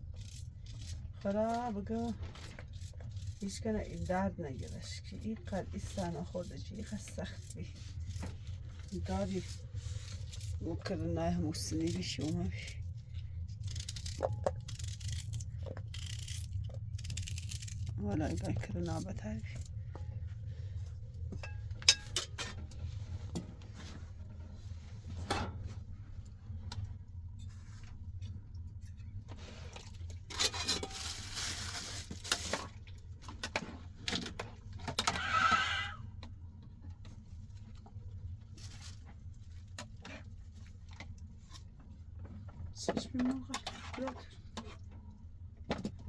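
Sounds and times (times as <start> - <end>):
steady low hum: 0.0 - 31.1
pots and utensils clinking: 21.4 - 22.6.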